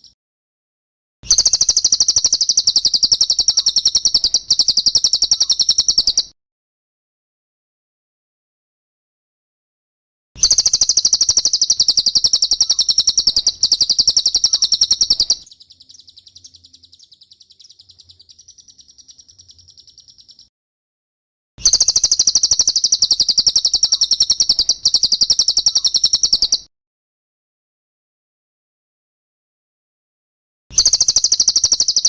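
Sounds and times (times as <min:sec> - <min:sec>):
bird rapid high trill: 0:01.3 - 0:06.3, 0:10.4 - 0:20.5, 0:21.6 - 0:26.7
bird chattering phrase: 0:01.4 - 0:06.3, 0:10.4 - 0:20.5, 0:21.7 - 0:26.6.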